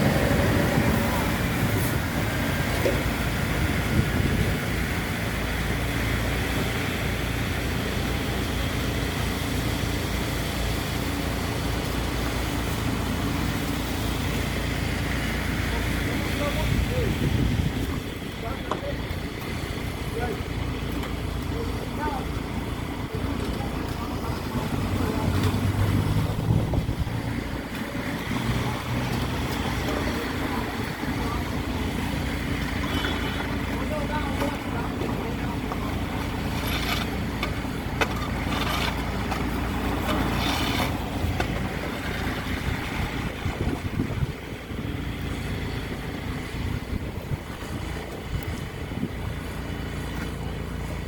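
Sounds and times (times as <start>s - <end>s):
wind on microphone: 0.0s - 5.1s, 16.6s - 18.4s, 24.2s - 29.4s, 40.9s - 45.0s
traffic engine rumble: 0.0s - 51.0s.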